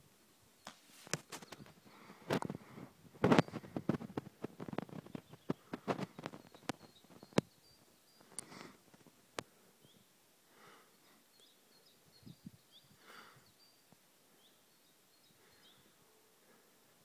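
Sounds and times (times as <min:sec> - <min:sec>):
soft rustles: 0:00.6 - 0:07.4
faint high bird chirps: 0:05.0 - 0:08.5, 0:10.8 - 0:16.6.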